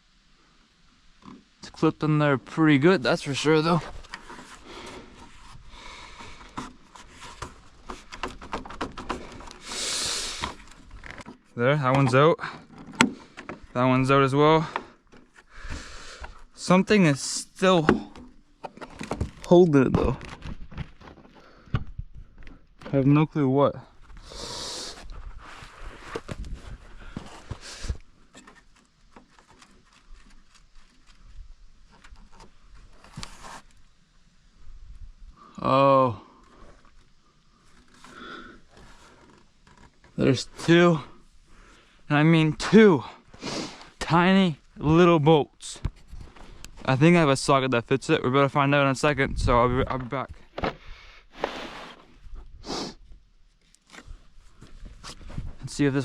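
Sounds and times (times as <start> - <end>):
scraping rustle: 3.2 - 15.9, 24.0 - 34.0, 51.3 - 52.4
plastic clicking and rubbing: 6.4 - 9.6, 27.1 - 33.3
short hiss-like scrape: 9.6 - 10.7, 24.2 - 26.2, 43.3 - 44.0, 50.7 - 53.0.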